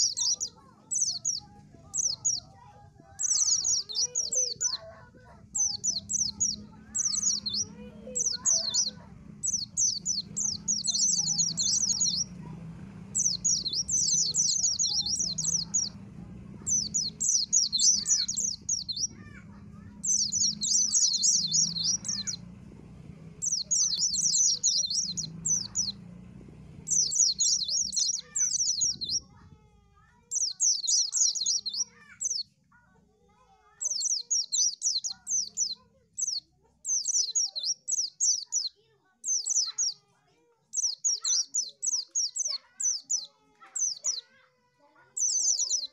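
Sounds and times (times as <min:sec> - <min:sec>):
bird twittering song: 0:00.0 - 0:29.5, 0:30.1 - 0:32.6, 0:33.7 - 0:40.1, 0:40.7 - 0:45.9.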